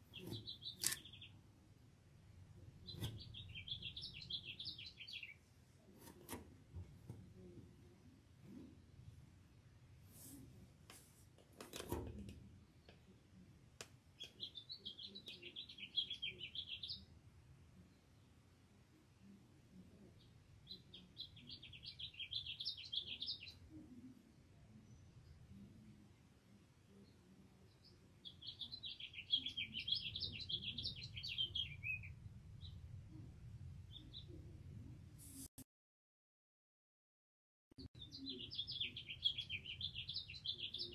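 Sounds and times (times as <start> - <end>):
bird chirping song: 0.0 - 1.6, 2.6 - 6.1, 14.2 - 17.2, 19.2 - 26.1, 26.8 - 34.5, 37.8 - 40.9
low background noise: 0.0 - 35.5.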